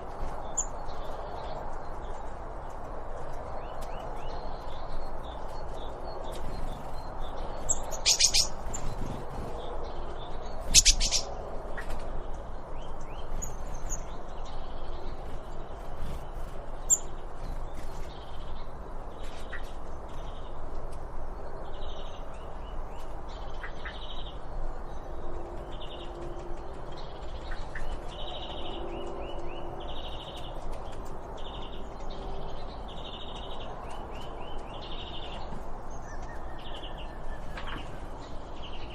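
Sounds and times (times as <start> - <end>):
outdoor background noise: 0.0 - 38.9
songbirds chirping: 0.0 - 38.9
loud rapid bird calls: 6.3 - 9.8, 10.4 - 12.0.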